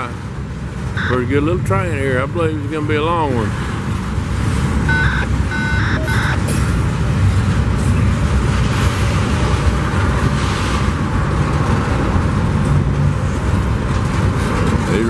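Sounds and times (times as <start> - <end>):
diesel locomotives working hard: 0.0 - 15.0
train wheels rumbling on rails: 6.4 - 15.0.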